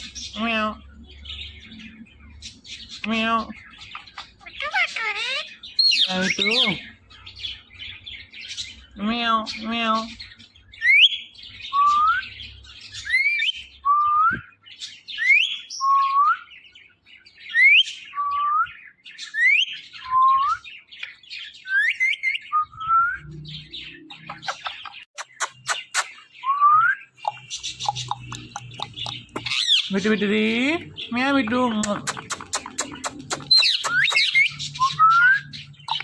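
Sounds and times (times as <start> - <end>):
scratchy bird calls: 1.6 - 7.7, 23.2 - 26.3, 27.1 - 30.1, 30.9 - 36.0
sharp clicks: 31.8 - 34.3.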